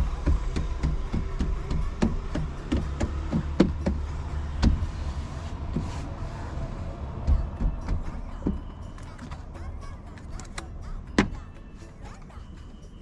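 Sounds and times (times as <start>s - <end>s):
irregular knocks and clicks: 0.0s - 6.0s, 7.2s - 9.4s
steady low rumble: 0.0s - 13.0s.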